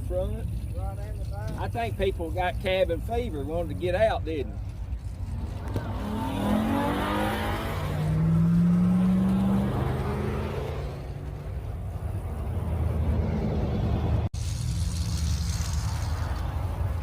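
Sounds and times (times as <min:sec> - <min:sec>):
low rumble of running engines: 0:00.0 - 0:06.3, 0:07.6 - 0:17.0
car engine accelerating: 0:05.0 - 0:17.0.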